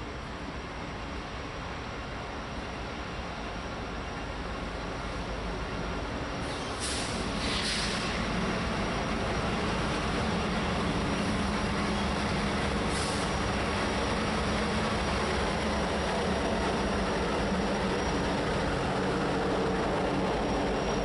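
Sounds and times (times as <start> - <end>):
diesel locomotive engine drone: 0.0 - 21.0
train rail noise: 0.0 - 21.0.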